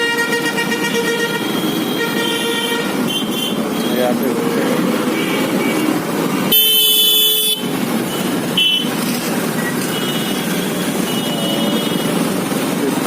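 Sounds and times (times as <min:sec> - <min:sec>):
vehicle horn: 0:00.0 - 0:04.1, 0:06.5 - 0:08.9, 0:09.9 - 0:12.2
road traffic and engine noise: 0:00.0 - 0:13.0.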